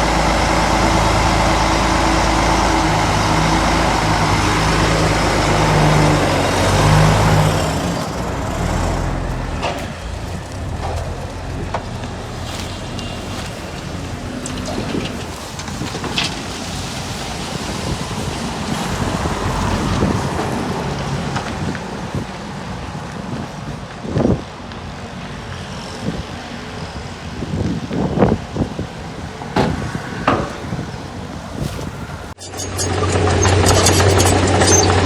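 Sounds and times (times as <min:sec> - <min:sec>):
earthmoving machinery rumble: 0:00.0 - 0:22.9
wind buffeting microphone: 0:00.0 - 0:32.4.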